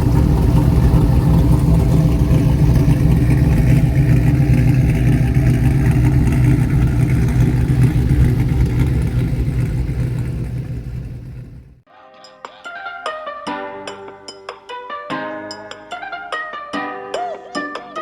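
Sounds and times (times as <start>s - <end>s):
truck engine running: 0.0s - 11.8s.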